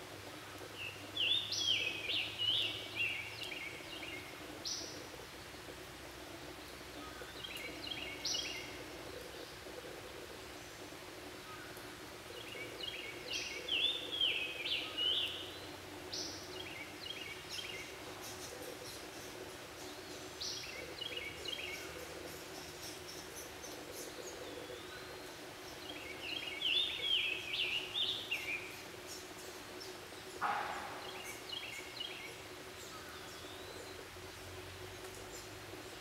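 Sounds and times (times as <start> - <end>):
chattering bird calls: 6.9 - 34.0.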